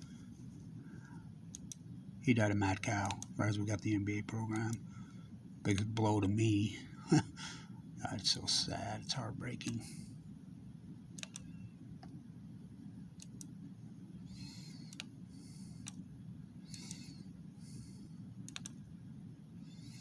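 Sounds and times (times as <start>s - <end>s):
low room hum: 0.0s - 20.0s
computer clicks: 1.5s - 1.8s, 3.0s - 3.3s, 11.1s - 12.2s, 13.2s - 13.6s, 14.8s - 15.1s, 18.4s - 18.9s.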